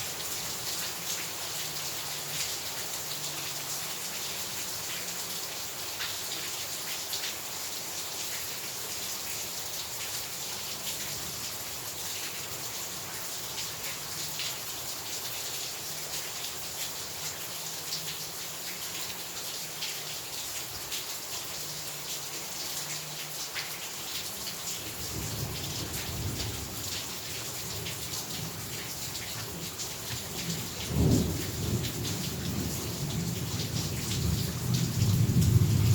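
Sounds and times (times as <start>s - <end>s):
heavy rain falling: 0.0s - 35.9s
low rumble of thunder: 30.1s - 35.9s.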